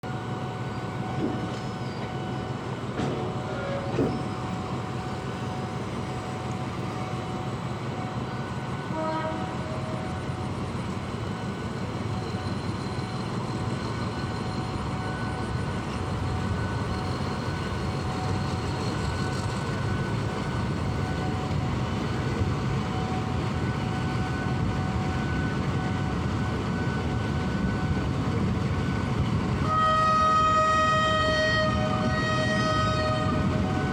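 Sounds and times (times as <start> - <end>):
train rumbling: 0.0 - 33.9.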